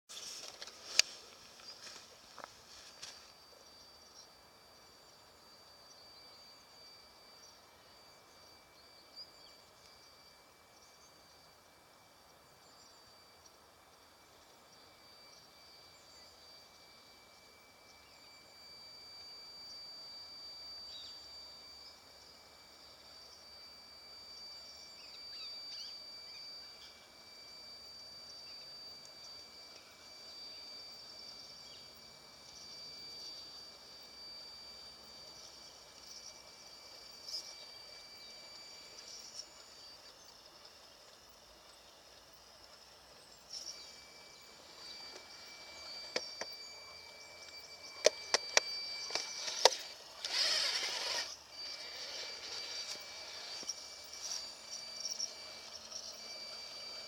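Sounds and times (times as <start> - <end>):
faint high whine: 0.1 - 57.0
high insect drone: 0.1 - 57.0
bird chirps: 24.6 - 27.0
toy truck wheels clicking on wood: 48.0 - 54.4.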